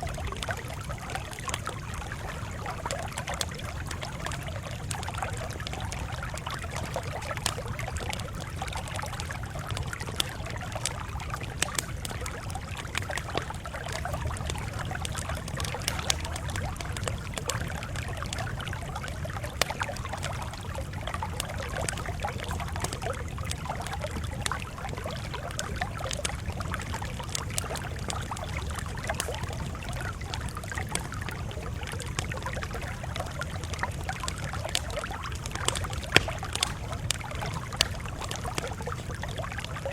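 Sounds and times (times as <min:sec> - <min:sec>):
fire crackling and popping: 0:00.0 - 0:39.9
low noise of burning fire: 0:00.0 - 0:39.9.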